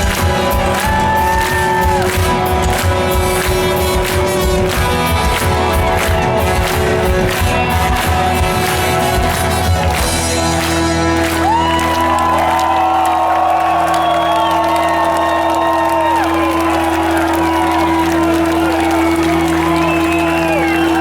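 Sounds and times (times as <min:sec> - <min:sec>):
live rock band playing: 0:00.0 - 0:13.4
drums: 0:00.0 - 0:21.0.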